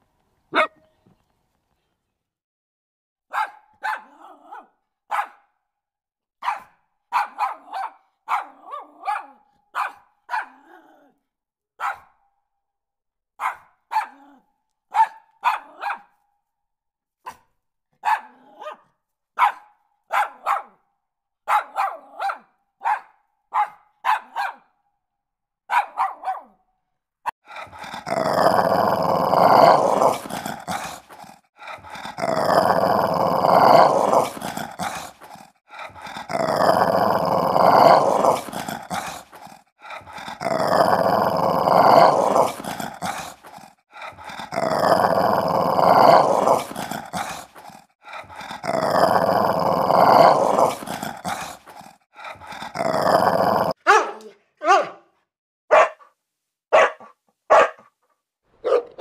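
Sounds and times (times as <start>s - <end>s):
dog barking: 0.5s - 0.9s, 3.3s - 5.6s, 6.4s - 10.8s, 11.8s - 12.2s, 13.4s - 16.2s, 17.2s - 24.8s, 25.7s - 26.6s, 53.8s - 58.0s, 58.6s - 59.0s
dog growling: 10.5s - 11.2s, 27.4s - 53.8s.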